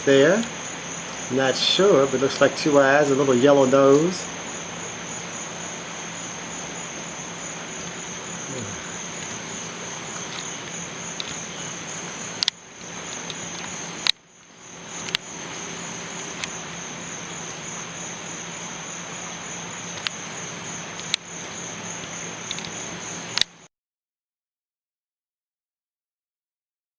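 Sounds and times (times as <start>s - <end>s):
background hiss: 0.0s - 23.7s
crickets trilling: 0.0s - 23.7s
sharp clicks: 10.1s - 11.5s, 12.3s - 15.3s, 19.9s - 20.2s, 20.9s - 21.3s, 22.4s - 23.6s.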